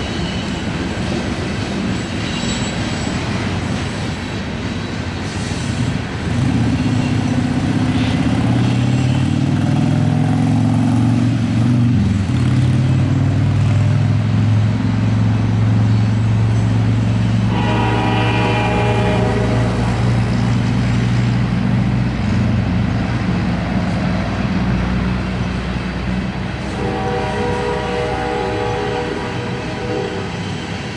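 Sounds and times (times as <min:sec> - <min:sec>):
diesel locomotive engines droning: 0:00.0 - 0:30.9
locomotive horn: 0:17.3 - 0:20.6, 0:26.6 - 0:30.7.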